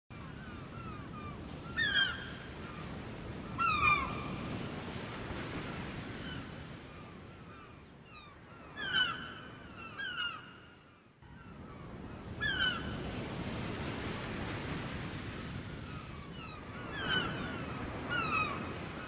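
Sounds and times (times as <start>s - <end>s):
downward-gliding bird calls: 7.5s - 11.8s.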